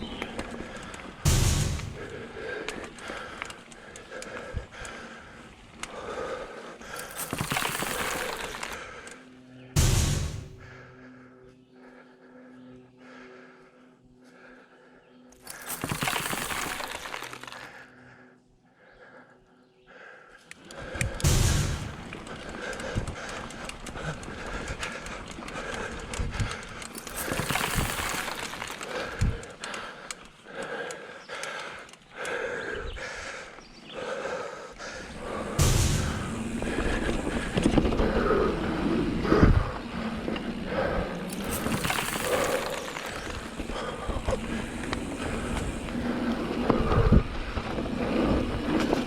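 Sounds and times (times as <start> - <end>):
bike tyre and frame rattle: 0.0 - 9.1, 15.4 - 17.8, 20.7 - 32.4, 34.8 - 49.0
heavy thumps: 1.3 - 2.2, 9.8 - 10.8, 21.2 - 22.3, 35.5 - 37.8.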